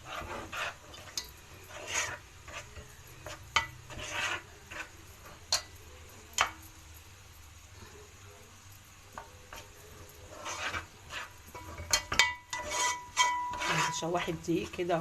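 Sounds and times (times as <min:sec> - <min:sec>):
spoon scraping a pot: 0:00.0 - 0:06.7, 0:09.1 - 0:15.0
faint sizzle: 0:00.0 - 0:15.0
spoon knocking against pot: 0:11.6 - 0:13.7.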